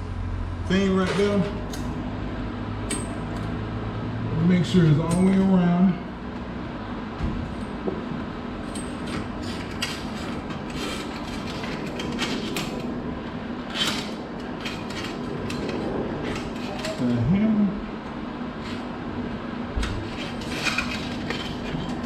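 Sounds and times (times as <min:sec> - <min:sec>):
wire cable scraping on metal: 0:09.1 - 0:13.0, 0:13.6 - 0:17.2, 0:19.8 - 0:22.0.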